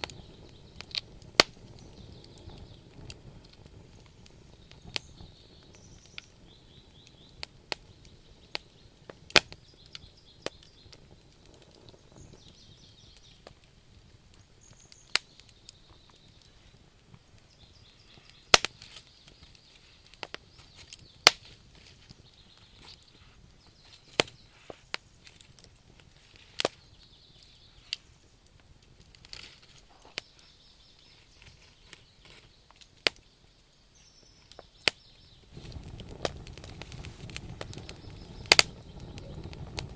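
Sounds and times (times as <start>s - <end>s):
low burning rumble: 0.0s - 29.7s, 35.1s - 39.9s
wood fire crackling: 0.0s - 39.9s.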